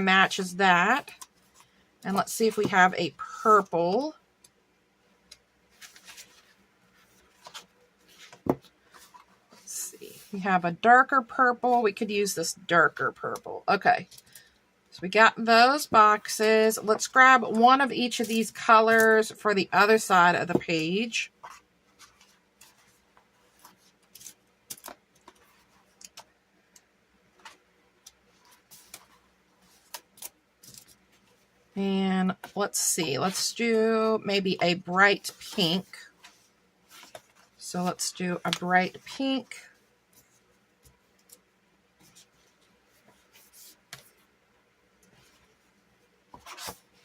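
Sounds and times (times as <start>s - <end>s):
paper sheets rustling: 5.7s - 10.2s, 46.3s - 47.0s.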